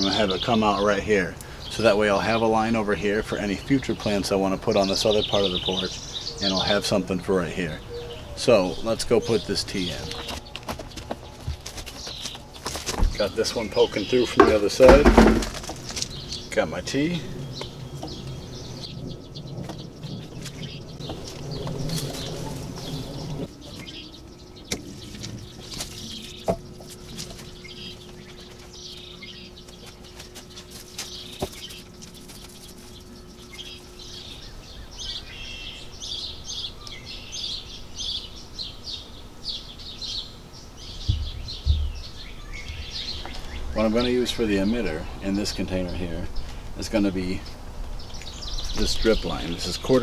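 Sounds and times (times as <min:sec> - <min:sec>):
small birds chirping: 0:00.0 - 0:50.0
low thumps: 0:14.3 - 0:15.7, 0:40.9 - 0:43.0.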